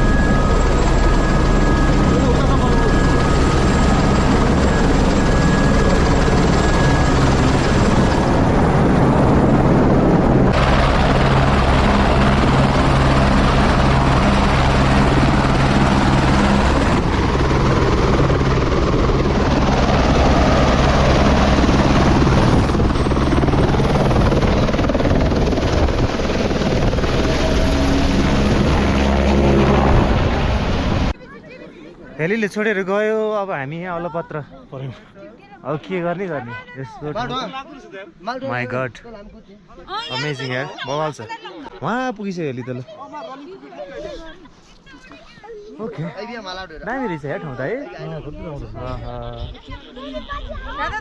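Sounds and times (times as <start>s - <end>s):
helicopter drone: 0.0s - 32.3s.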